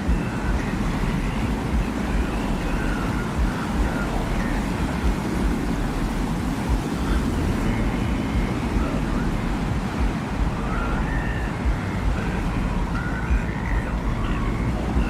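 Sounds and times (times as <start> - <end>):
faint high whistling tones: 0.0 - 15.0
low gusting wind: 0.0 - 15.0.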